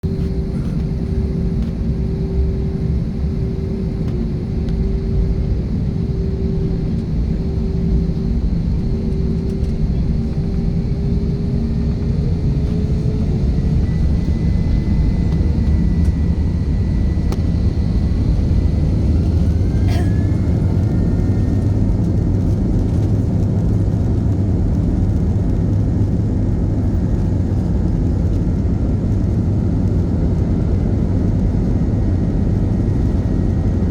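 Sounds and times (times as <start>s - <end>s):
airplane engines rumbling: 0.0s - 33.9s
droning tone rising in pitch: 0.1s - 23.2s
thin rising whine: 2.0s - 22.7s.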